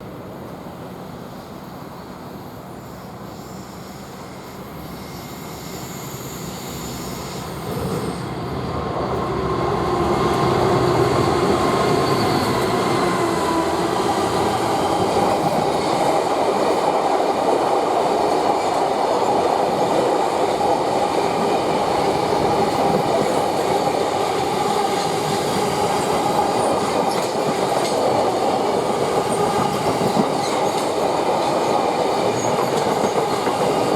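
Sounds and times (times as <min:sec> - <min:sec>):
diesel locomotive engine: 0:00.1 - 0:33.9
train wheels rolling: 0:04.9 - 0:33.9.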